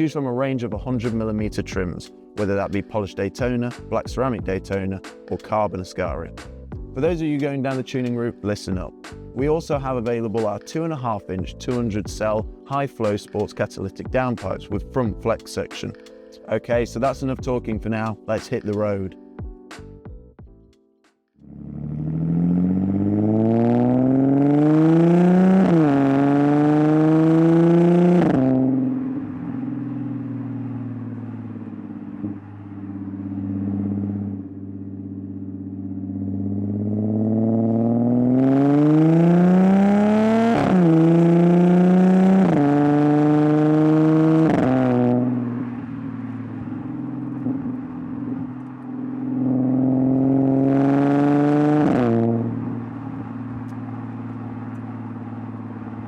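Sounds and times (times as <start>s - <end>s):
supercharged car engine accelerating: 21.4s - 56.0s.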